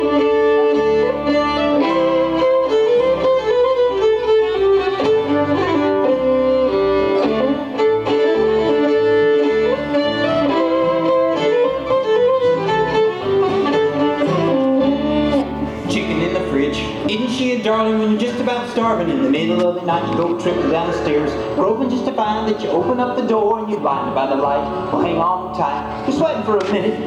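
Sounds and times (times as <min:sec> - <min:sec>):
fiddle playing lively melody: 0:00.0 - 0:27.0
strummed guitar: 0:00.2 - 0:27.0.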